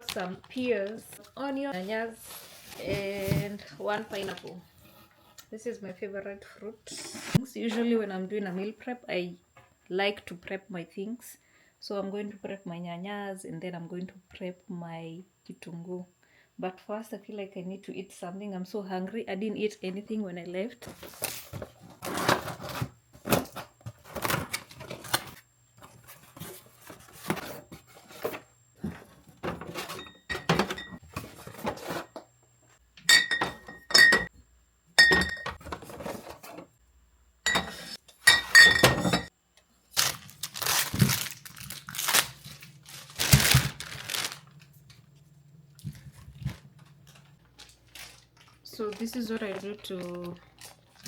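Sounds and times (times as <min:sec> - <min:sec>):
dishes and cutlery clattering: 0:29.4 - 0:31.0, 0:33.1 - 0:34.3, 0:35.0 - 0:35.8, 0:37.5 - 0:39.3
crockery clinking: 0:33.1 - 0:34.3, 0:35.0 - 0:35.6, 0:37.5 - 0:39.3.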